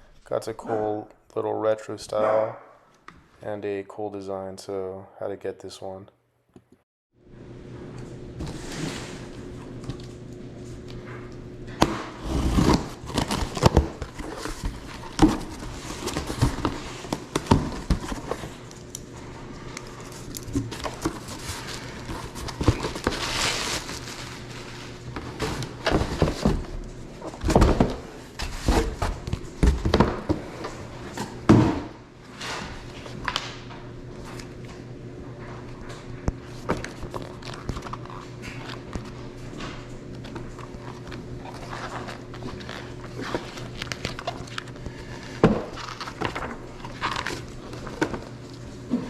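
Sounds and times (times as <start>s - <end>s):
packaging rustling: 12.5s - 19.0s, 19.8s - 26.6s, 40.3s - 48.5s.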